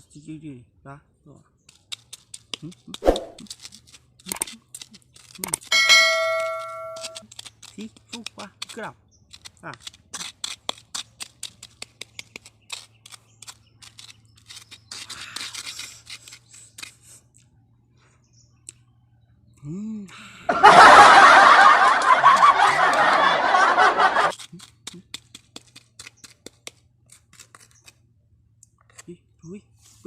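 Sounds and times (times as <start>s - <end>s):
chewing leaves crunching: 1.7s - 5.8s, 6.5s - 17.6s, 24.2s - 29.1s.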